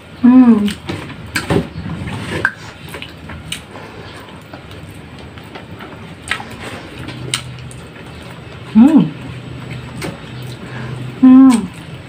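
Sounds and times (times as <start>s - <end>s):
low steady hum: 0.0s - 12.0s
wet chewing and lip smacks: 2.4s - 10.8s.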